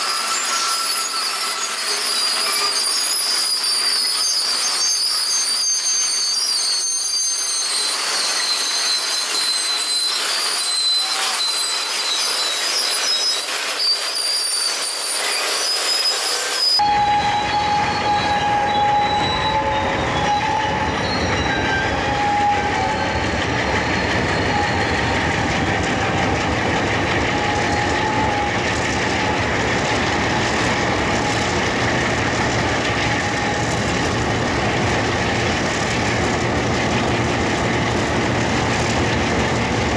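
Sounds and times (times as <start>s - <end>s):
diesel locomotive engine rumble: 0.0s - 39.9s
train wheels squealing on rails: 0.0s - 39.9s.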